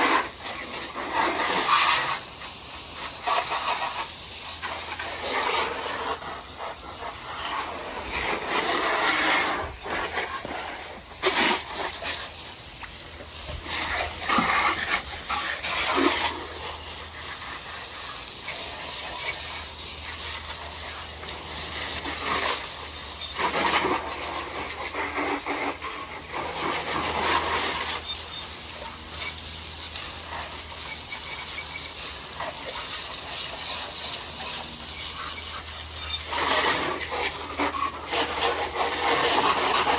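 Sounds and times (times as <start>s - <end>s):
water spraying on motorcycle: 0.0s - 39.9s.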